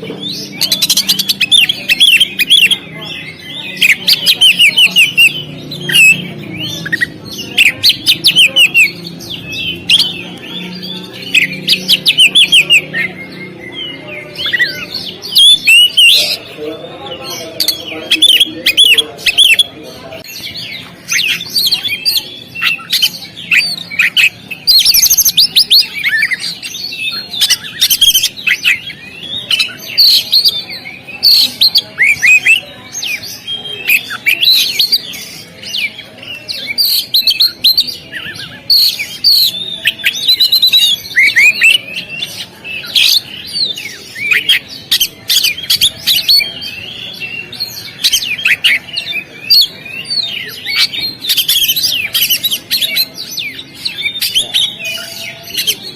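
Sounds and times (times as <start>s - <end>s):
bird singing whistles and chirps: 20.4s - 55.9s.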